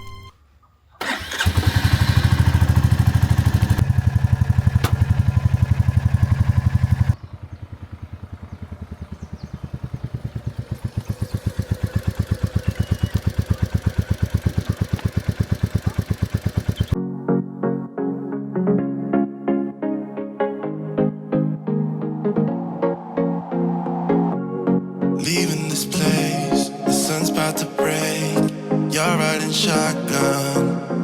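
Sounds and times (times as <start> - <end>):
motorcycle engine running: 1.0 - 17.0.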